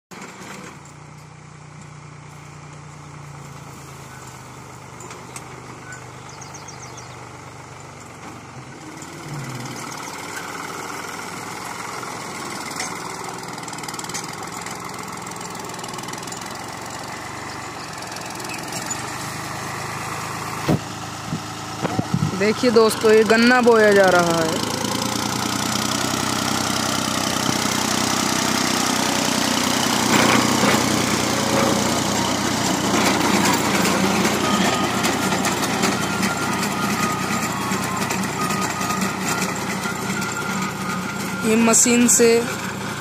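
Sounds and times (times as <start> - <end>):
tractor engine running: 0.1 - 43.0.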